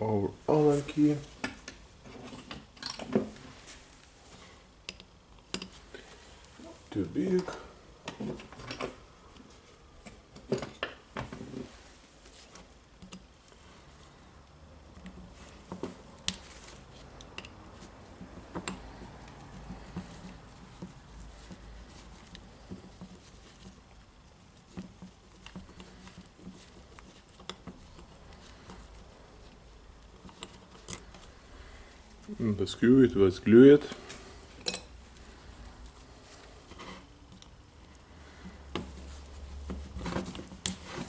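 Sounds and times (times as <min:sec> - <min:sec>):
metallic clicks of small steel parts: 0:04.8 - 0:05.7, 0:17.2 - 0:17.6.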